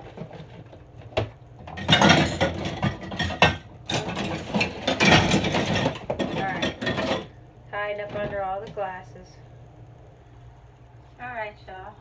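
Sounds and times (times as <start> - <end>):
dishes and glasses clattering: 1.6 - 7.3.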